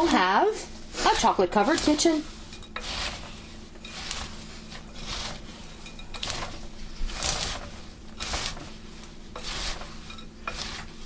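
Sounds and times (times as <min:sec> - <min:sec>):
spoon scraping in a bowl: 0:00.0 - 0:00.3, 0:00.9 - 0:11.0.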